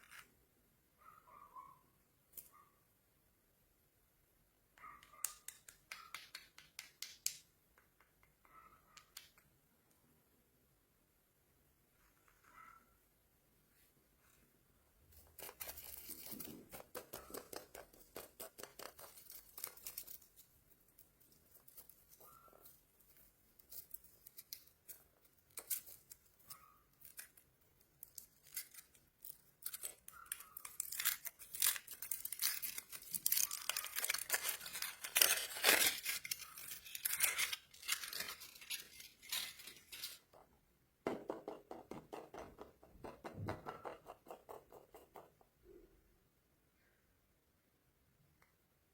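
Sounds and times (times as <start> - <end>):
plastic wrappers crinkling: 15.2 - 40.3.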